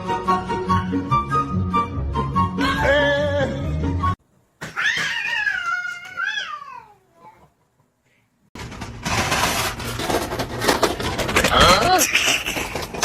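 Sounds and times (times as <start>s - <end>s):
cat meowing: 4.8s - 7.3s.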